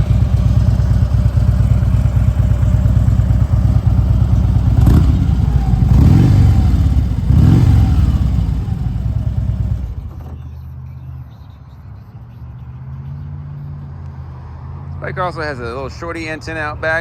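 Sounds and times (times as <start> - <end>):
motorcycle engine revving and idling: 0.0 - 10.5.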